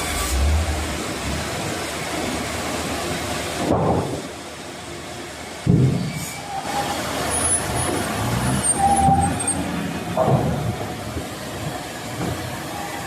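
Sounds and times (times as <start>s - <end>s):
wood-cutting machine rumbling: 0.0s - 4.8s.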